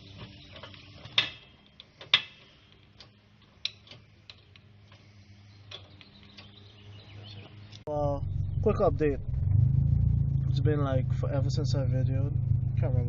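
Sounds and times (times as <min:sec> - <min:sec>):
faint low hum: 0:07.9 - 0:13.0.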